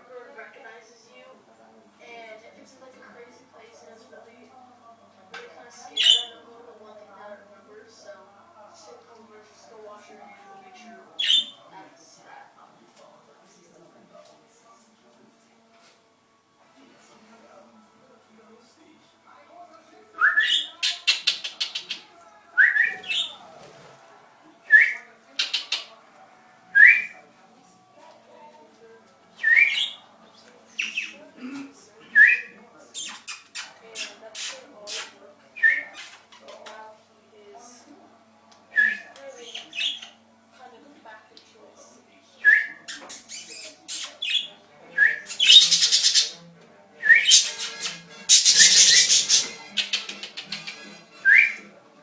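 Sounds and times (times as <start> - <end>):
budgerigars clicking chatter: 20.4 - 22.1, 25.4 - 25.9, 30.7 - 31.2, 32.9 - 35.1, 39.4 - 40.2, 42.9 - 44.5, 45.2 - 46.4, 47.2 - 51.0
budgerigars whistled chirps: 42.9 - 46.4, 47.1 - 50.0.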